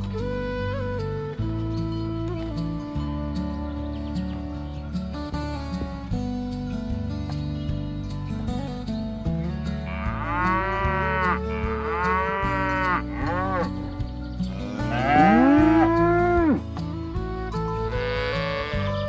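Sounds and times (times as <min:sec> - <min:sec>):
background music: 0:00.0 - 0:19.0
cattle mooing: 0:09.9 - 0:13.8, 0:14.5 - 0:16.6.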